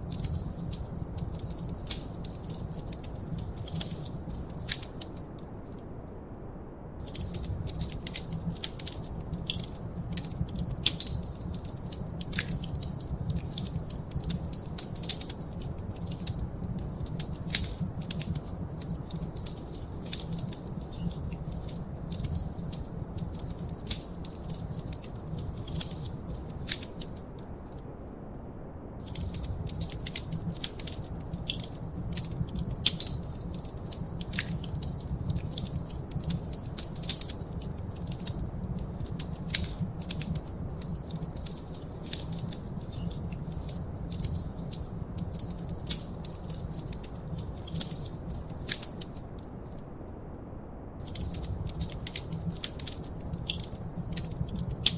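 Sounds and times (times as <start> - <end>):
wood fire crackling: 0.0 - 6.0, 7.0 - 27.9, 29.0 - 50.2, 51.0 - 54.9.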